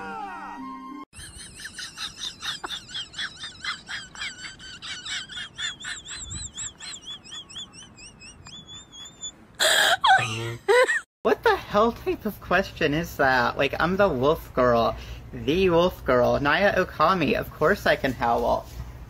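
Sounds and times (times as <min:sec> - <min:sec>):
small bird singing: 0:05.8 - 0:09.4.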